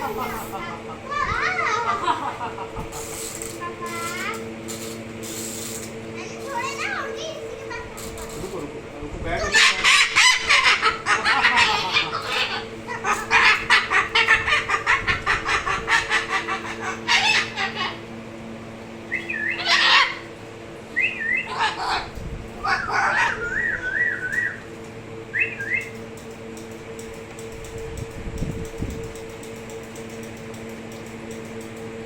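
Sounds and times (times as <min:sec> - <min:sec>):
cockatoo laughing: 0:00.0 - 0:03.3, 0:09.4 - 0:18.0, 0:19.4 - 0:20.2, 0:21.4 - 0:23.7
steady low hum: 0:00.0 - 0:32.0
loud bird calls: 0:09.4 - 0:18.1, 0:19.0 - 0:24.7, 0:25.3 - 0:26.1
warbling whistles: 0:19.1 - 0:19.9, 0:20.9 - 0:21.6, 0:22.7 - 0:24.7, 0:25.3 - 0:26.0.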